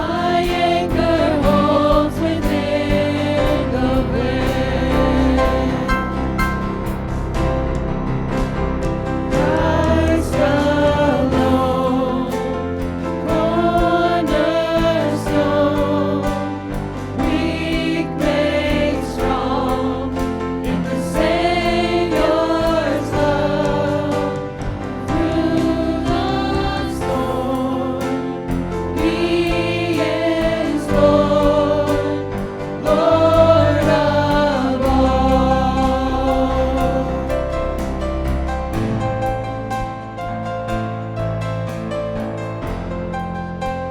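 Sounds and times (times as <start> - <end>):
voices singing gospel song: 0.0 - 7.6, 8.3 - 40.3
sustained instrumental accompaniment: 0.0 - 43.9.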